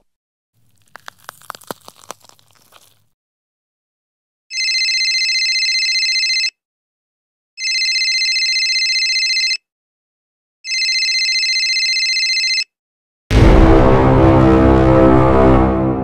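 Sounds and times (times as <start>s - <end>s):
cell phone ringing: 4.5s - 6.6s, 7.6s - 9.6s, 10.7s - 12.7s.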